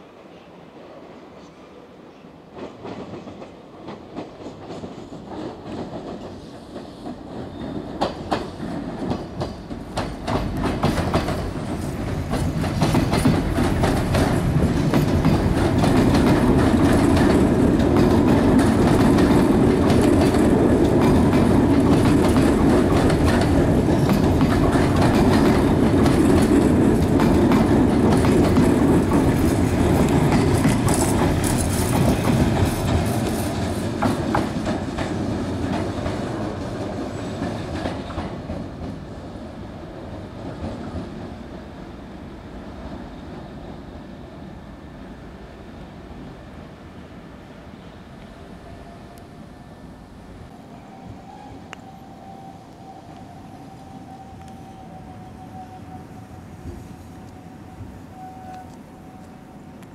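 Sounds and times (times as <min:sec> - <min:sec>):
electric train passing: 0:00.0 - 0:59.9
wheels clicking over rail joints: 0:03.9 - 0:39.1.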